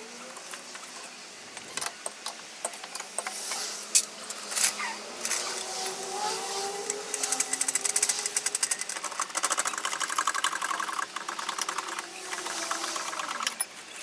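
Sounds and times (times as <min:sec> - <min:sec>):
metal tools clinking: 0:00.3 - 0:05.8, 0:06.8 - 0:14.0.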